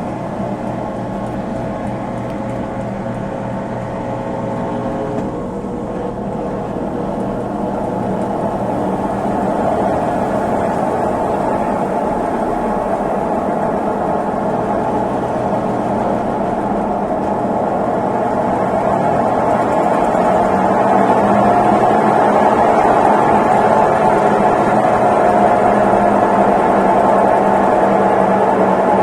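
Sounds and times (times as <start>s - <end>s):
washing machine spinning: 0.0s - 29.0s.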